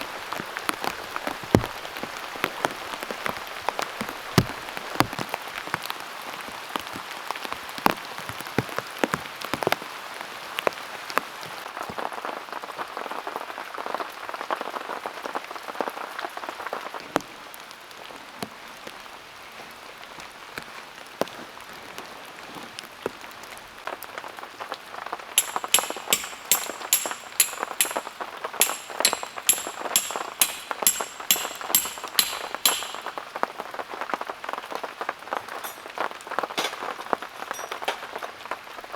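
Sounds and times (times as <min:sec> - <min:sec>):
sharp ringing ticks: 0:25.4 - 0:33.2.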